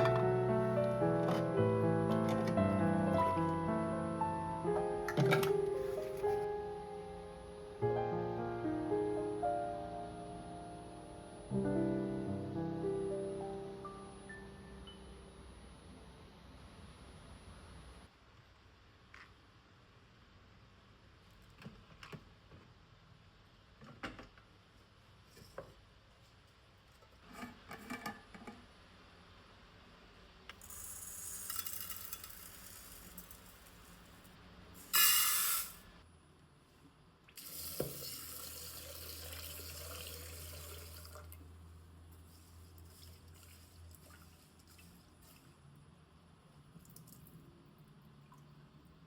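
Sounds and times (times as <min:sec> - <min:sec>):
kitchenware clicks and knocks: 0:05.1 - 0:06.3
tap water running into sink: 0:37.4 - 0:41.4.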